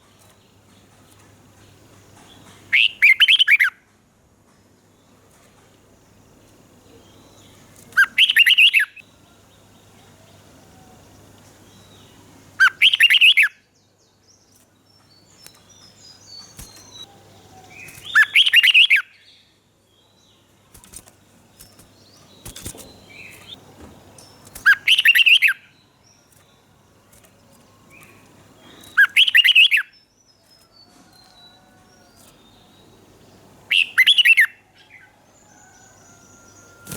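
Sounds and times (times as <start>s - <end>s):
bird warbling song phrases: 2.4s - 3.8s, 6.9s - 13.6s, 14.5s - 19.5s, 24.2s - 33.0s, 33.7s - 36.9s
soft bird chirps: 5.0s - 36.9s.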